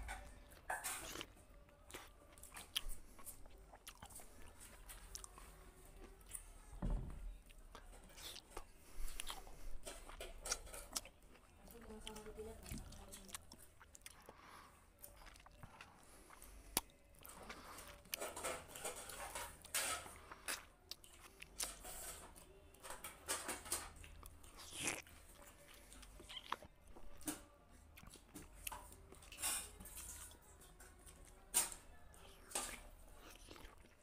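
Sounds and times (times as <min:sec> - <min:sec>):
man chewing and smacking: 0:01.0 - 0:06.4, 0:07.4 - 0:18.2, 0:20.3 - 0:21.7, 0:24.0 - 0:27.2, 0:28.0 - 0:29.4, 0:32.2 - 0:34.0.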